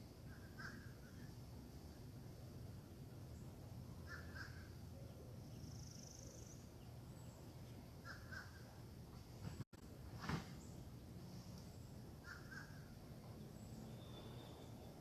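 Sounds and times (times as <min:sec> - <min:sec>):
crow cawing: 0:00.3 - 0:01.2, 0:04.0 - 0:04.7, 0:08.0 - 0:08.6, 0:12.2 - 0:12.9.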